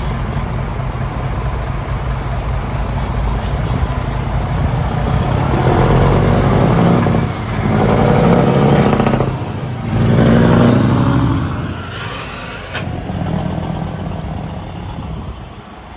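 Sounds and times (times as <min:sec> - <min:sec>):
truck diesel engine revving: 0:02.6 - 0:14.8.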